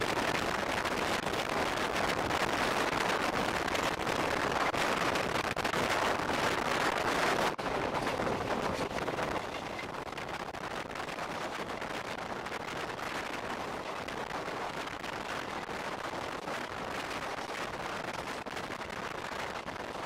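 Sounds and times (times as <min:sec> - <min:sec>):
rush of air and rumble: 0:00.0 - 0:20.0
train wheels clattering on rails: 0:05.8 - 0:12.0.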